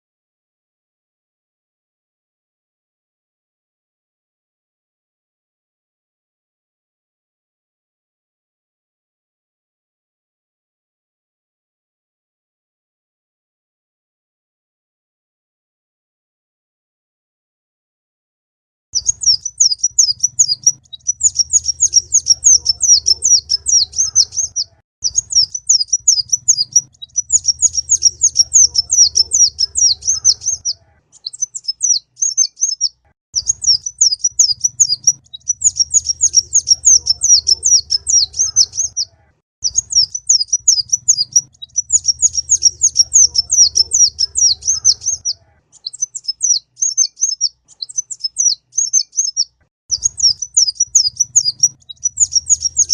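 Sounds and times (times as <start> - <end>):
sunbird twittering song: 19.0 - 52.9.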